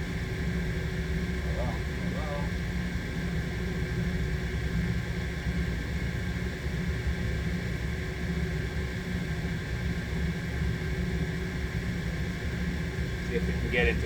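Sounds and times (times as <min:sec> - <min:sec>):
machinery hum: 0:00.0 - 0:03.8, 0:12.8 - 0:14.0.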